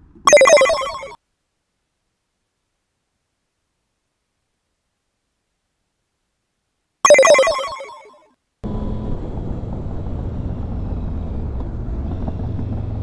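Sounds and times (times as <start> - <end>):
ringing phone-like chime: 0.3 - 1.2, 7.1 - 8.1.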